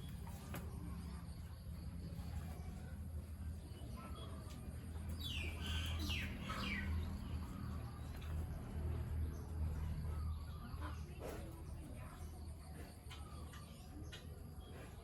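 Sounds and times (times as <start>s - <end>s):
steady low hum: 0.0s - 15.0s
bird chirping: 5.1s - 8.3s.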